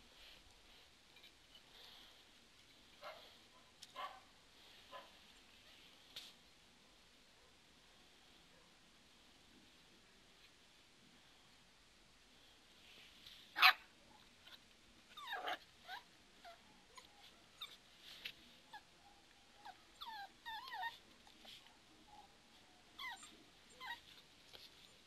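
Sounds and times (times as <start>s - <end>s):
dog whimpering and whining: 15.1s - 17.8s, 19.6s - 21.7s, 23.0s - 24.9s.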